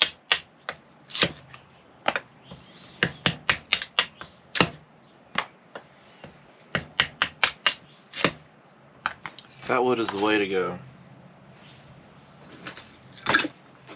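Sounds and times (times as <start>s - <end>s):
wood splitting knocks and cracks: 0.0s - 2.3s, 3.0s - 5.5s.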